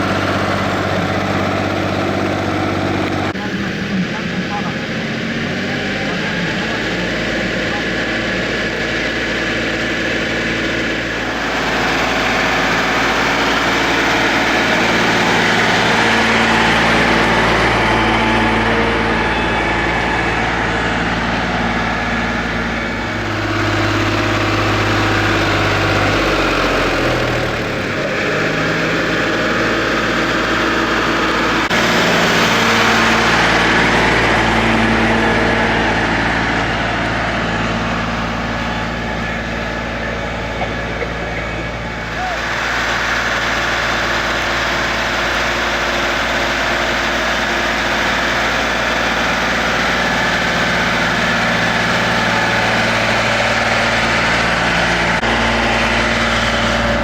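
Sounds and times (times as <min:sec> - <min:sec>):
deeper drone sliding down in pitch: 0:00.0 - 0:44.0
tractor diesel engine running: 0:00.0 - 0:57.0.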